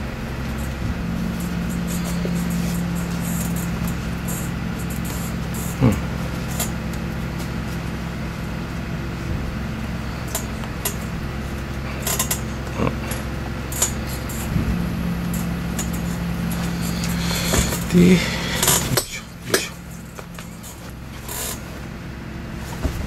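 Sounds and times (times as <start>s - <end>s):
steady low hum: 0.0s - 23.0s
leather squeaking: 0.4s - 8.7s, 13.1s - 21.9s.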